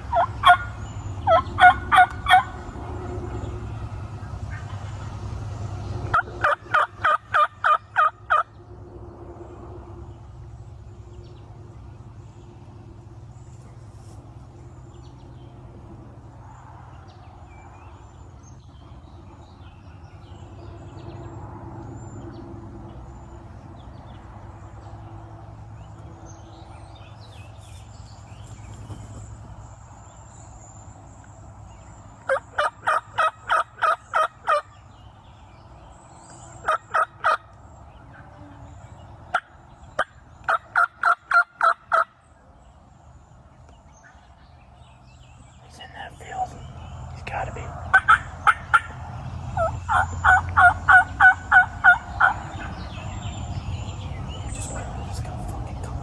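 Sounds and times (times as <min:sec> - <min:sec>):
turkey yelping: 0:00.0 - 0:02.7, 0:06.1 - 0:08.4, 0:32.2 - 0:34.7, 0:36.5 - 0:37.5, 0:39.3 - 0:42.1, 0:47.9 - 0:49.0, 0:49.6 - 0:52.8
faint songbird chirps: 0:00.0 - 0:06.7, 0:07.6 - 0:56.0
low steady rumble: 0:00.0 - 0:56.0.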